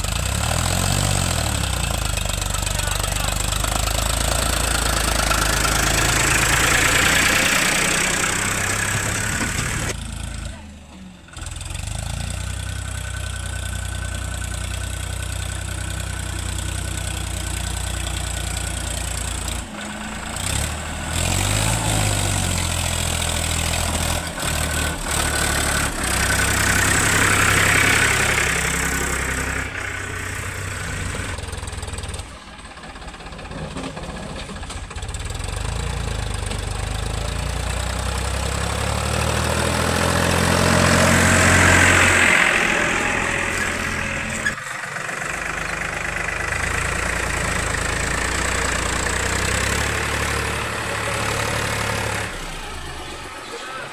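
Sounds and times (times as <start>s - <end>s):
diesel engine running near idle: 0.0s - 53.9s.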